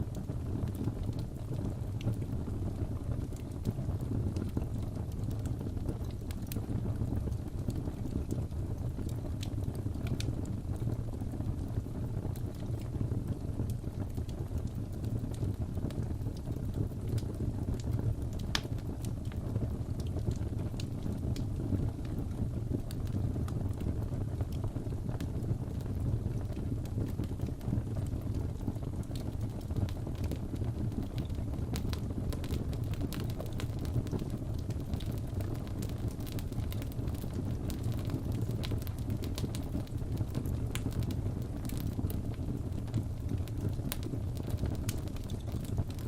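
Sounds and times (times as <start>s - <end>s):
wood fire crackling: 0.0s - 46.0s
fire pops and snaps: 0.1s - 46.0s.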